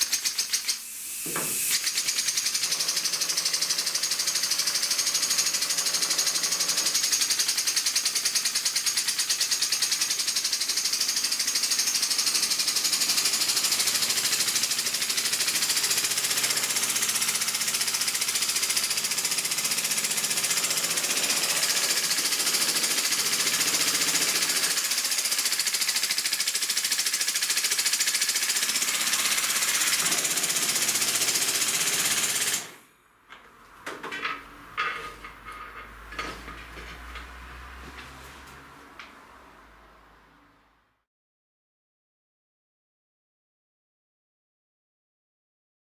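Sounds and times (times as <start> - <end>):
air hissing: 0.5 - 2.2.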